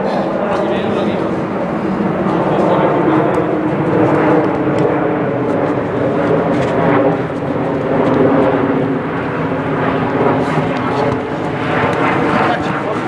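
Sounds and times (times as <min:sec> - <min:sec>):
loud engine-like drone: 0:00.0 - 0:13.0.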